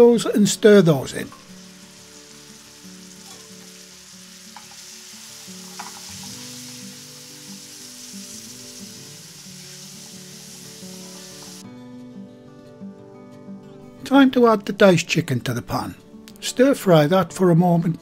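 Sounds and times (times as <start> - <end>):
soft music: 0.0 - 18.0
vegetables sizzling in hot oil: 1.0 - 11.6.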